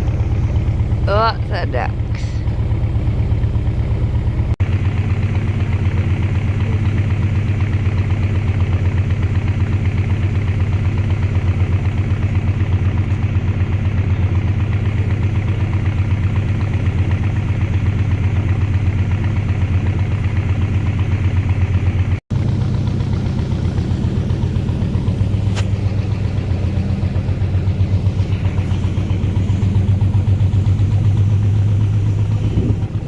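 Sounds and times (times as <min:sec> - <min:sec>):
boat engine running at low revs: 0:00.0 - 0:33.0.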